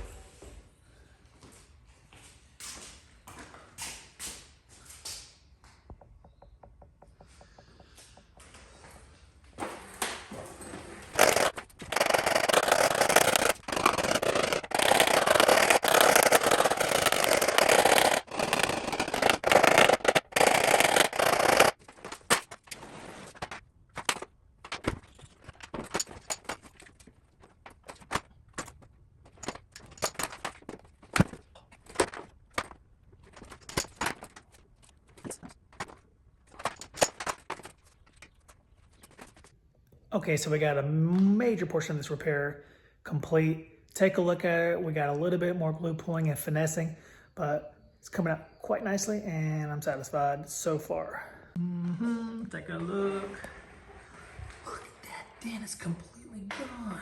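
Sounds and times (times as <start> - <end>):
rough scraping on metal panel: 10.5 - 21.8.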